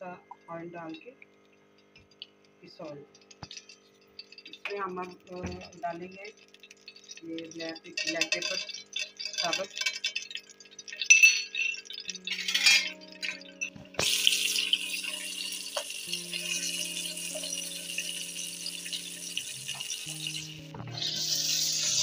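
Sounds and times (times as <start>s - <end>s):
metal clinking on frying pan: 3.2s - 20.5s
chicken sizzling in oil: 6.2s - 11.1s, 13.0s - 22.0s
soft background music: 11.8s - 22.0s.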